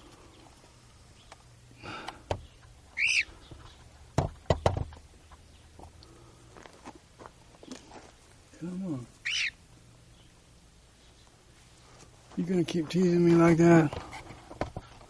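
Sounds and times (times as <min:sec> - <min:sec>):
cockatiel chirp: 0:03.0 - 0:03.3, 0:09.2 - 0:09.6
sharp knocks: 0:04.2 - 0:05.0.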